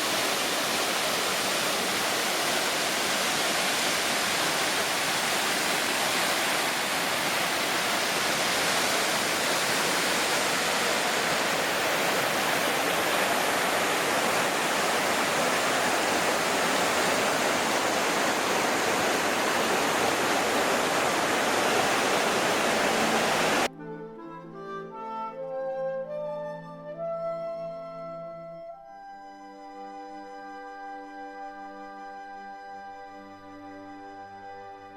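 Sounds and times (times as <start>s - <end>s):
waterfall roaring: 0.0s - 23.7s.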